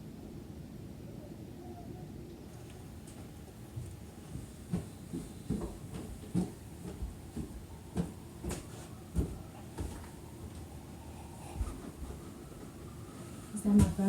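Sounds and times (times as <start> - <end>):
footsteps soft thuds: 3.0 - 14.0.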